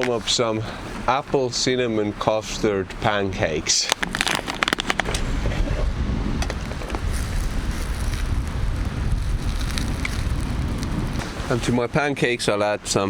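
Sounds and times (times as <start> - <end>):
wind buffeting microphone: 4.0 - 12.4.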